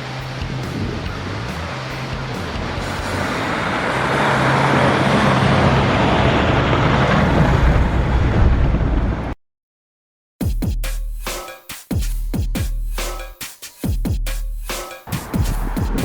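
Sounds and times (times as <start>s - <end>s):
vehicle engine and road noise: 0.0s - 9.4s, 15.0s - 16.0s.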